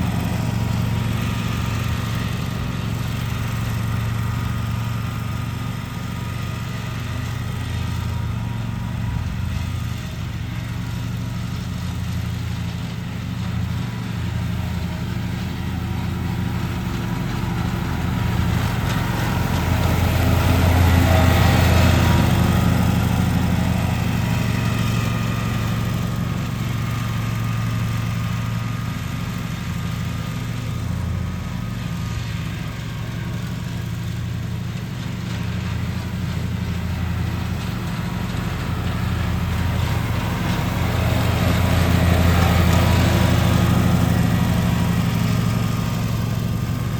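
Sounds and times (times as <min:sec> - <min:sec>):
lawn mower engine running: 0:00.0 - 0:46.9.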